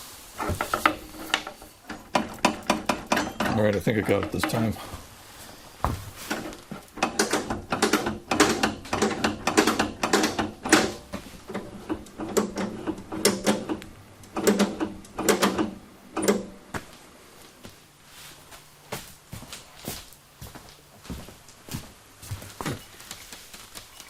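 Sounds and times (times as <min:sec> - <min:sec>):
metal clanks and rattles: 0:00.4 - 0:04.9, 0:06.2 - 0:16.6.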